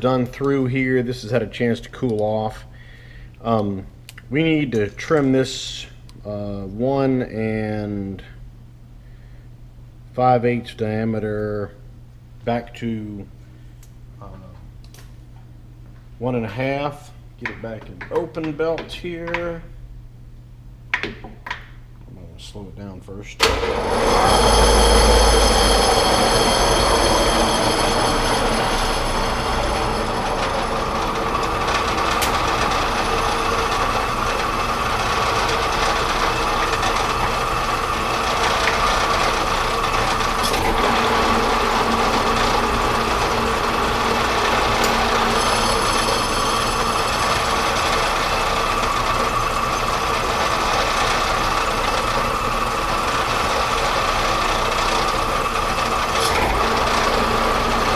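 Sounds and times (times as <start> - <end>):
high whine: 23.4 - 57.9
metal lathe machining: 23.4 - 57.9.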